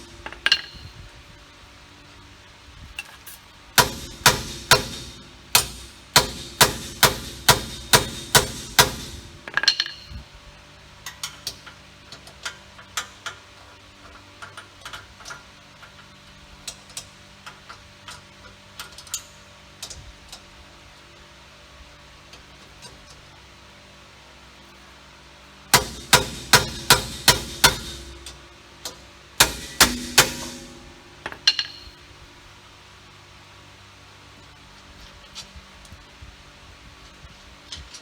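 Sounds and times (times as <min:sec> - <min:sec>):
hammer striking steel: 0:00.0 - 0:00.9, 0:03.8 - 0:10.1, 0:25.7 - 0:32.0.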